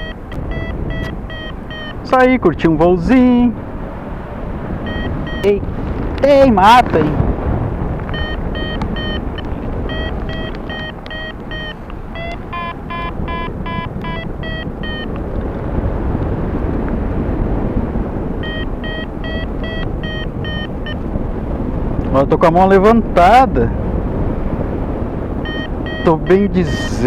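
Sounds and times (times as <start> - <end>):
variometer short electronic beeps: 0.0 - 2.1, 4.8 - 5.6, 8.1 - 15.2, 18.4 - 21.0, 25.4 - 27.0
wind rushing over microphone: 0.0 - 27.0.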